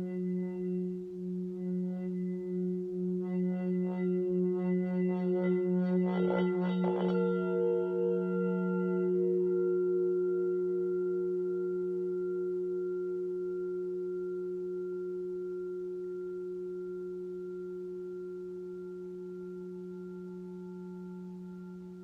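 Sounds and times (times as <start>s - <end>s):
singing bowl ringing: 7.8s - 22.0s.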